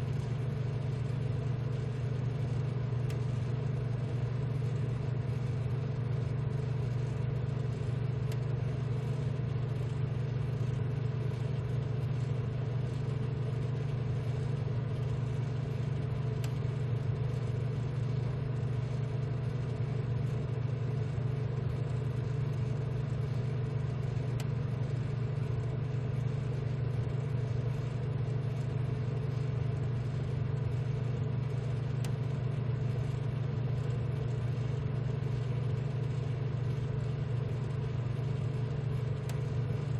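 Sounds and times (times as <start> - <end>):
rework station humming: 0.0 - 39.9
faint tick: 3.0 - 3.4, 8.3 - 8.5, 16.4 - 16.7, 32.0 - 32.2, 39.2 - 39.5.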